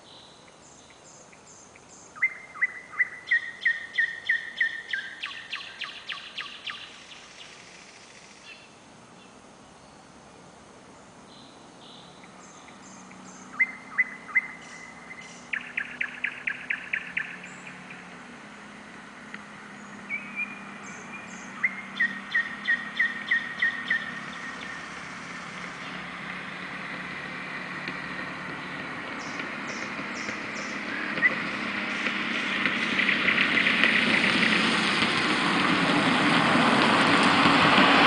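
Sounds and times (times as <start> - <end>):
nightingale singing: 0.0 - 10.0, 11.3 - 18.4, 19.2 - 26.6, 28.5 - 32.6
distant traffic hum: 0.0 - 38.0.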